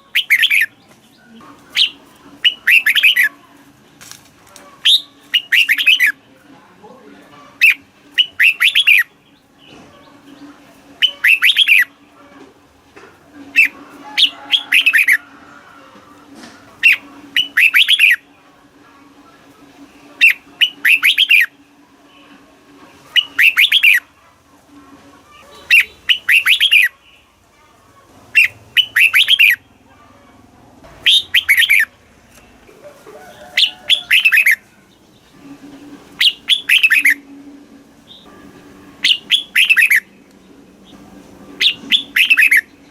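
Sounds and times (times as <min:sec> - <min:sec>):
bird singing warbled notes: 0:00.0 - 0:00.8, 0:01.7 - 0:03.3, 0:04.8 - 0:06.2, 0:07.6 - 0:09.4, 0:11.0 - 0:12.0, 0:13.5 - 0:15.2, 0:16.8 - 0:18.3, 0:20.2 - 0:21.6, 0:23.1 - 0:24.1, 0:25.6 - 0:27.3, 0:28.3 - 0:29.7, 0:31.0 - 0:32.0, 0:33.9 - 0:34.7, 0:35.3 - 0:42.9.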